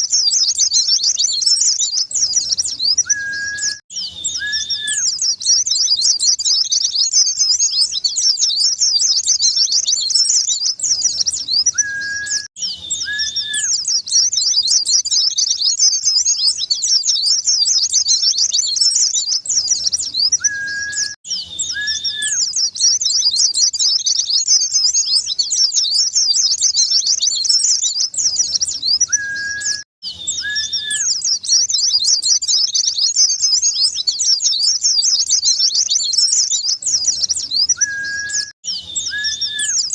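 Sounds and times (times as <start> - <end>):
bird high twittering song: 0.0 - 39.9
steady whistled notes: 20.3 - 22.5, 28.9 - 31.2, 37.1 - 39.9.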